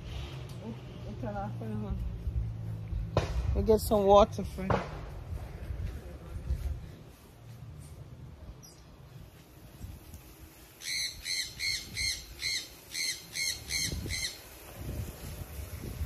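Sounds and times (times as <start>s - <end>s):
bird squawking: 10.8s - 14.4s.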